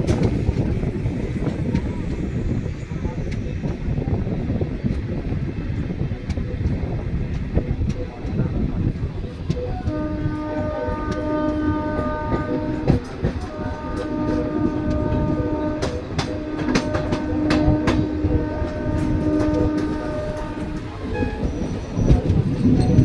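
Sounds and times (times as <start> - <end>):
moving train rumble: 0.0 - 23.0
wheels clacking over rail joints: 6.2 - 23.0
train horn blasts: 9.7 - 21.8.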